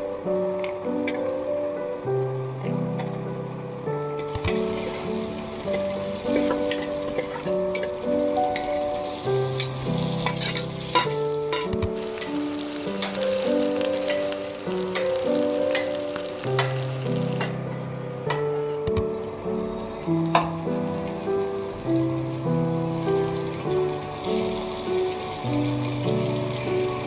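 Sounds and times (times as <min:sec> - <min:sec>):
food sizzling in oil: 0:00.0 - 0:27.0
soft background music: 0:00.0 - 0:27.0
utensil clicking against pan: 0:04.2 - 0:08.8, 0:09.6 - 0:19.1.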